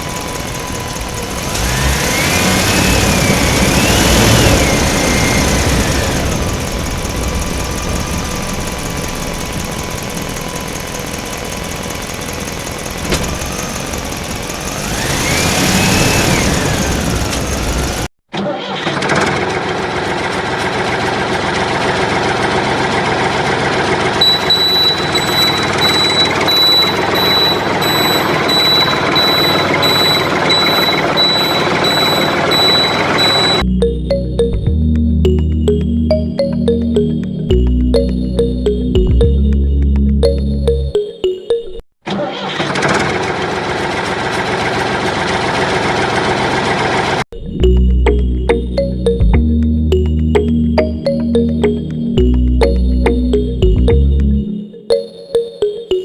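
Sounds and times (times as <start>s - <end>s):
motor revving: 0.0s - 18.1s
steady machine sound: 0.0s - 18.1s, 23.7s - 34.7s
high beeps: 24.2s - 41.8s, 47.4s - 56.0s.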